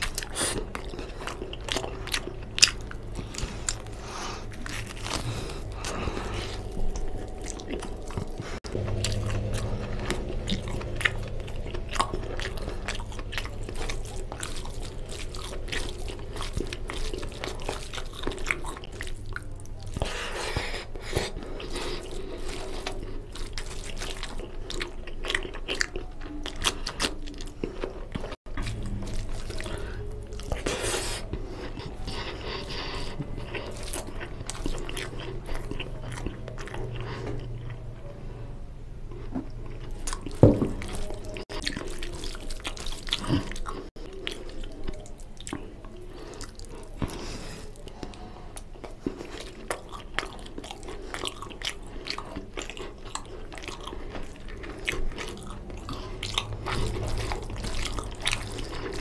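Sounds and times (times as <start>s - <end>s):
wet chewing and smacking: 0.0s - 38.1s, 39.1s - 59.0s
low hum: 1.3s - 17.8s, 28.5s - 39.8s.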